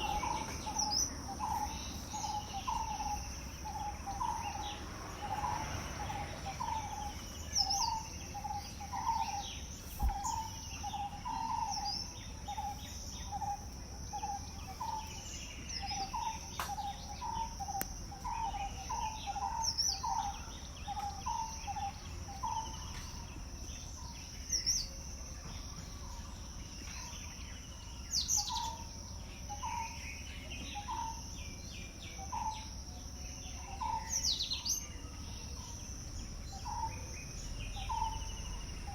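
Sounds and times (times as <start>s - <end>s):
bird repeating low call: 0.0s - 22.8s
birds chirping: 0.0s - 38.9s
insect drone: 0.0s - 38.9s.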